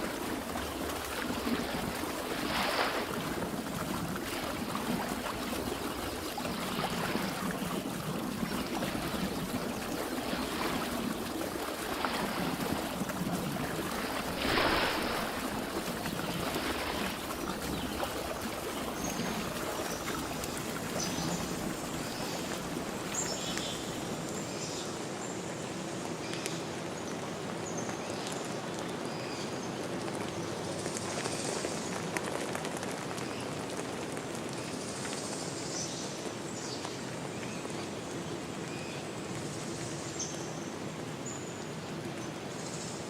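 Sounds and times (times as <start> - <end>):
flowing water rushing: 0.0 - 26.2.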